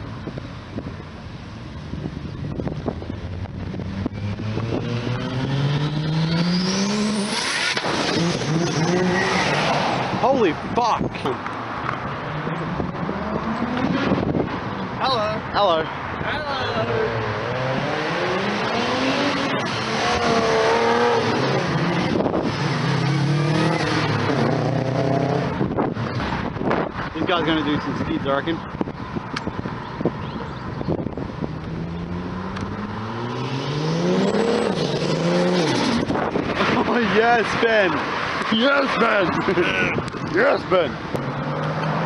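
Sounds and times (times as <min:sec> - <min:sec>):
car engine accelerating hard: 0:02.6 - 0:10.2, 0:16.9 - 0:26.9, 0:30.9 - 0:42.0.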